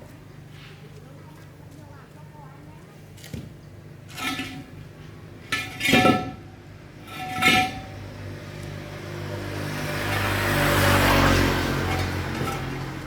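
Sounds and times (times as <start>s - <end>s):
metal clanking: 4.1s - 4.8s, 5.4s - 8.1s, 11.8s - 13.0s.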